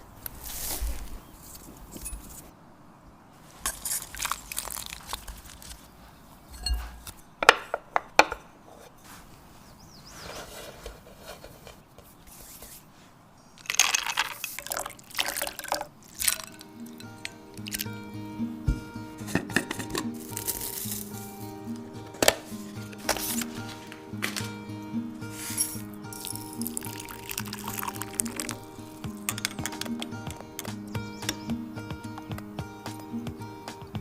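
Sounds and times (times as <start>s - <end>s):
utensils scraping containers: 10.1s - 12.8s, 13.6s - 18.0s, 19.2s - 31.5s.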